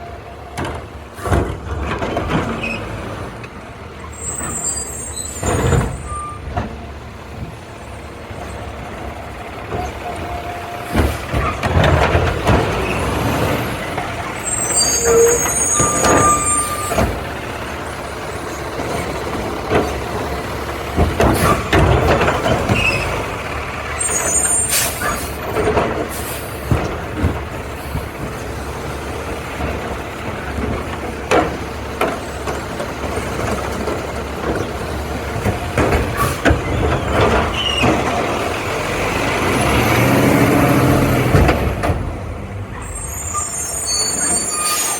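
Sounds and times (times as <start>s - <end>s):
garbage truck engine running: 0.0s - 44.9s
short high-pitched squeals: 4.1s - 6.4s, 14.4s - 17.0s, 42.8s - 44.9s
air brake hisses: 26.1s - 26.6s.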